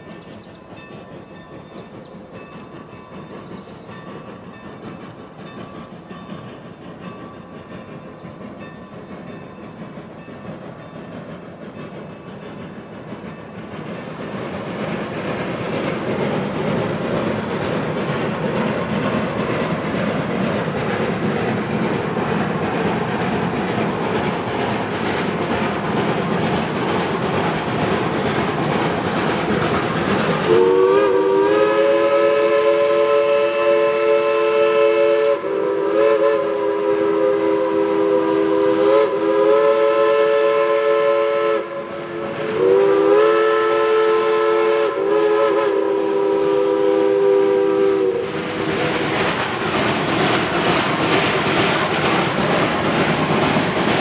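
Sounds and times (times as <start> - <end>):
steam locomotive exhaust and running: 0.0 - 54.0
steam whistle blasts: 30.4 - 48.6.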